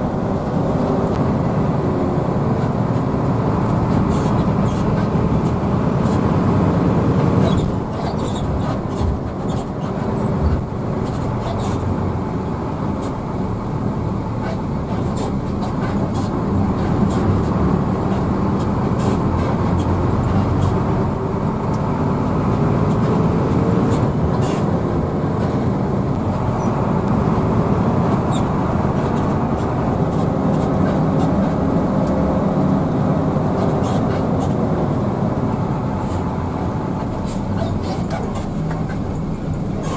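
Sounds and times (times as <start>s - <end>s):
bus engine rumble: 0.0s - 39.9s.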